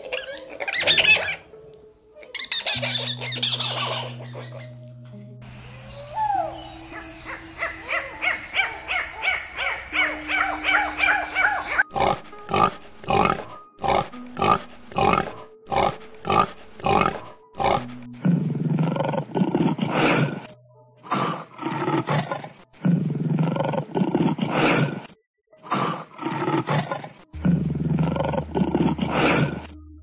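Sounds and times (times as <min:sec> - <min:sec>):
lemur calls: 0:00.0 - 0:01.5, 0:02.2 - 0:04.8, 0:05.4 - 0:11.9
pig grunting: 0:11.4 - 0:29.8
lion roaring: 0:11.9 - 0:20.5, 0:21.2 - 0:25.0, 0:25.7 - 0:29.7.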